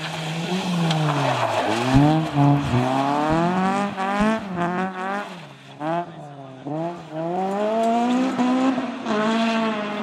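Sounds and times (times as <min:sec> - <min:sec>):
gravel hissing under tyres: 0:00.0 - 0:02.9
car engine revving hard: 0:00.3 - 0:10.0.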